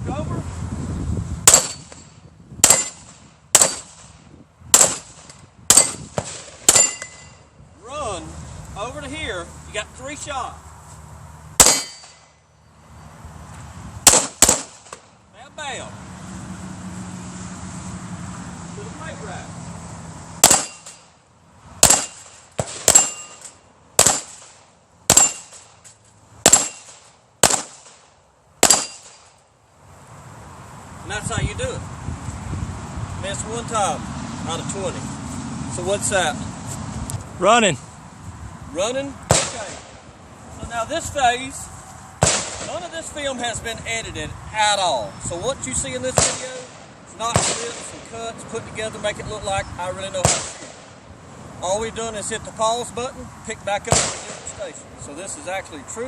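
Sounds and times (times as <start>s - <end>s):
gunshots: 1.5s - 2.0s, 2.6s - 4.1s, 4.7s - 7.1s, 11.6s - 12.2s, 14.0s - 15.1s, 20.4s - 21.0s, 21.8s - 25.7s, 26.4s - 29.3s, 39.3s - 40.0s, 42.2s - 42.8s, 46.2s - 48.0s, 50.2s - 50.9s, 53.9s - 54.6s
ringing ping of steel targets: 1.5s - 3.0s, 6.7s - 7.5s, 11.6s - 12.5s, 20.4s - 21.1s, 22.9s - 23.5s, 25.1s - 25.6s, 26.5s - 26.9s, 28.7s - 29.2s.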